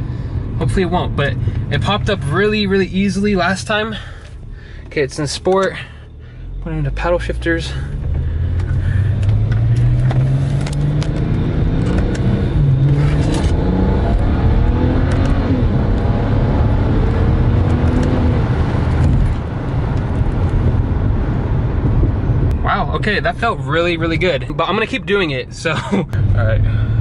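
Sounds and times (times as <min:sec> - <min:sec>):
car engine accelerating hard: 0:06.6 - 0:24.3.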